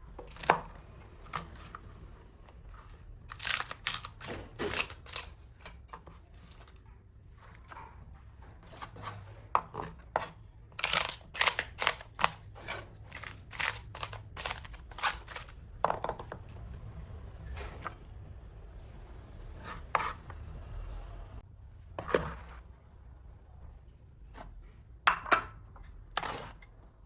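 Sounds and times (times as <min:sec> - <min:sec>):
knife cutting food: 0:08.7 - 0:15.6.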